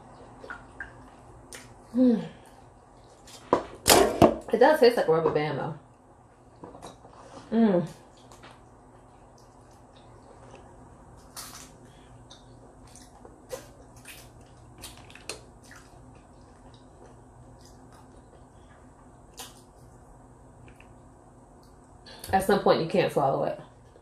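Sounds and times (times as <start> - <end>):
wet chewing: 8.0 - 21.8
lip smacks and mouth clicks: 20.6 - 21.0.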